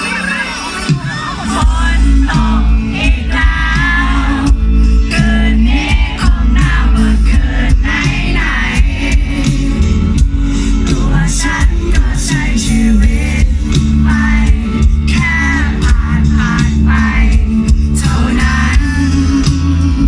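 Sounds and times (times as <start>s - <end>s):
drums: 0.0s - 20.0s
heavy bass: 0.0s - 20.0s
person singing: 0.0s - 20.0s.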